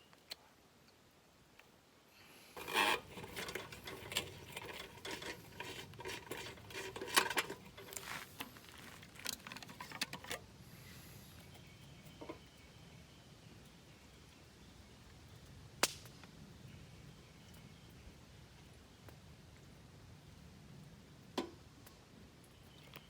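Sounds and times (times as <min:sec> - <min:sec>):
camp gear clinking and rustling: 0:02.5 - 0:10.5.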